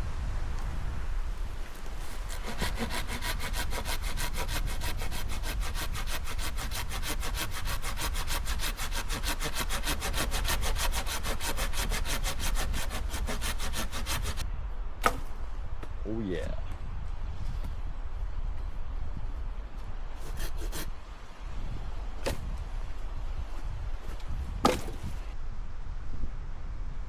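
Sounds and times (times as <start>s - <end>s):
hand saw cutting firewood: 1.5s - 14.4s, 20.2s - 20.9s, 22.2s - 22.5s, 24.1s - 25.2s.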